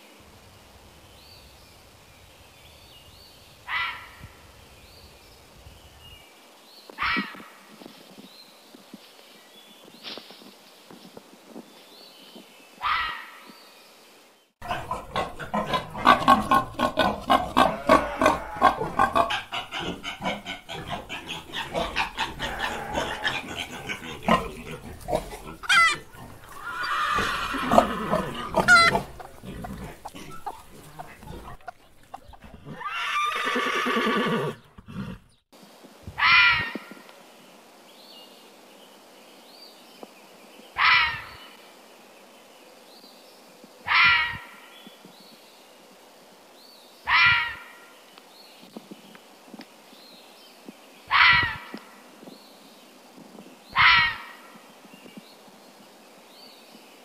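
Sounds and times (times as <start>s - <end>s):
rapid repeated animal calls: 14.6s - 34.2s, 43.9s - 44.6s, 47.1s - 47.7s, 53.7s - 54.5s
long falling animal call: 14.6s - 34.6s.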